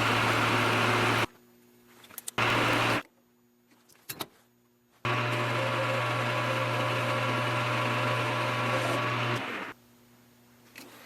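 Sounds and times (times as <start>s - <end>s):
metal lathe cutting: 0.0s - 1.3s, 2.4s - 3.0s, 5.1s - 9.7s.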